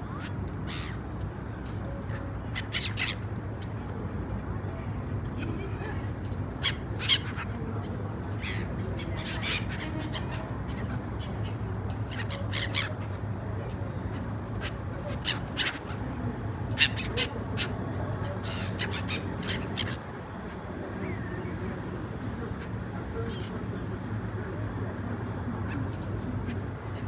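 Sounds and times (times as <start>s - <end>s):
gulls calling: 0.0s - 1.1s, 6.5s - 23.6s.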